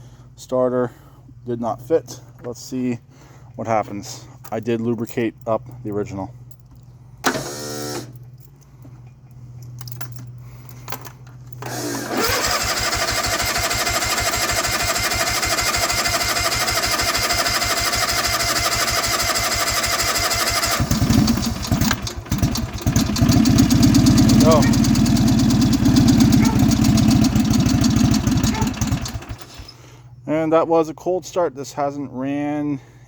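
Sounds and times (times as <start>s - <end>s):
starter cranking engine: 7.2s - 8.1s, 11.6s - 29.8s
engine sputtering and catching: 11.6s - 29.7s.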